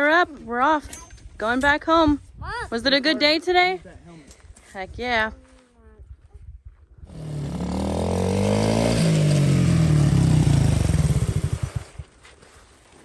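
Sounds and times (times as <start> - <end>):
vehicle engine accelerating: 7.1 - 12.0.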